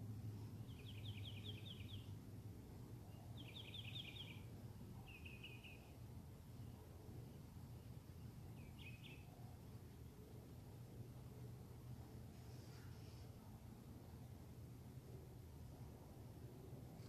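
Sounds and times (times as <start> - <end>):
faint low rumble: 0.0 - 17.0
songbird singing: 0.1 - 10.9.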